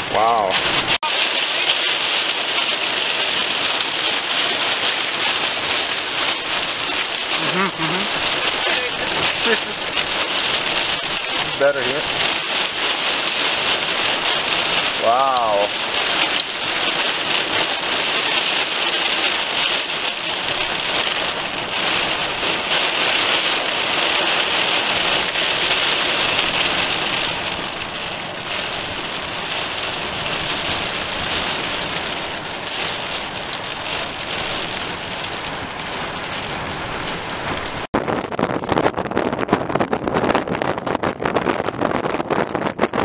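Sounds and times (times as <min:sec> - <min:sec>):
heavy rain pattering: 0:00.0 - 0:43.0.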